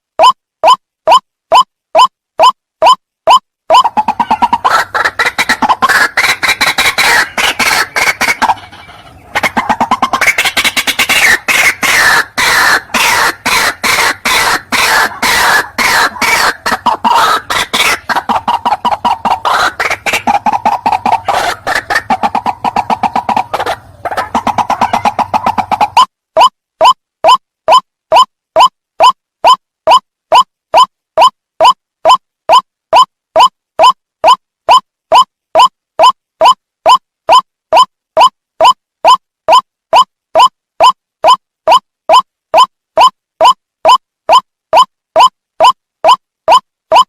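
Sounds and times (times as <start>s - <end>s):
bird harsh croaking call: 3.3s - 26.0s.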